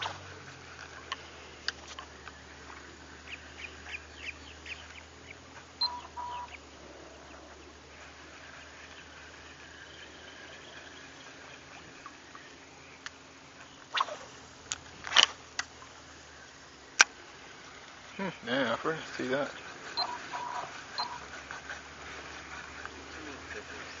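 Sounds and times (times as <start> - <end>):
short bird calls: 0.0 - 14.5, 18.0 - 24.0
faint hum of calling: 0.0 - 14.7, 15.6 - 24.0
short even-pitched beeps: 5.8 - 6.6, 20.0 - 21.2.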